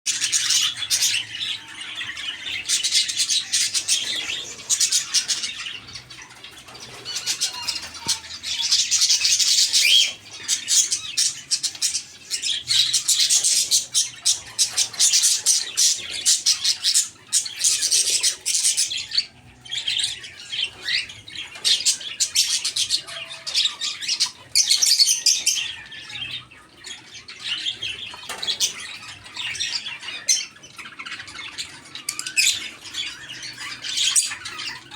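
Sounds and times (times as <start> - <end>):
parakeets chattering and squawking: 0.1 - 34.9.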